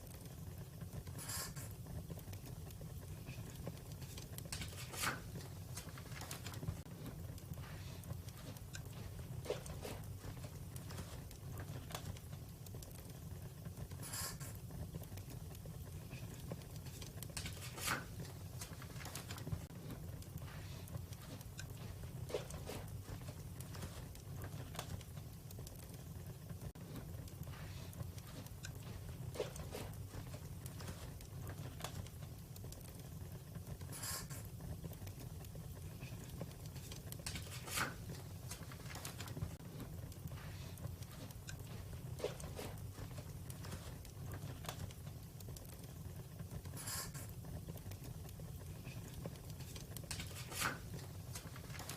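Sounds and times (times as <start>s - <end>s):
fire popping: 0.0s - 51.9s
wood fire crackling: 0.0s - 51.9s.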